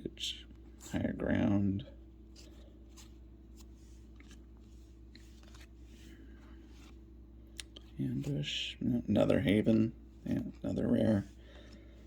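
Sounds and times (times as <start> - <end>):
low room hum: 0.0 - 12.0
trading cards flicking and sliding: 2.3 - 7.0.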